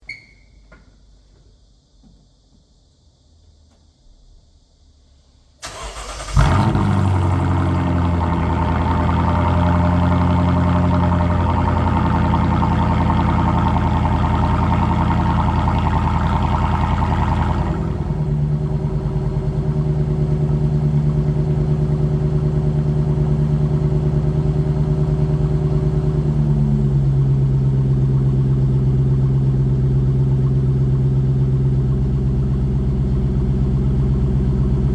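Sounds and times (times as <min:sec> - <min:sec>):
car engine cranking: 0:05.6 - 0:19.2
car engine idling: 0:05.6 - 0:34.9.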